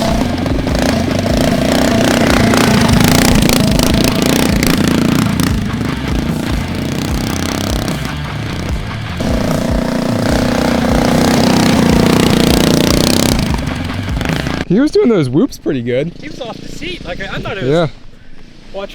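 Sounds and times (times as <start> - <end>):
small engine running under throttle: 0.0 - 14.6.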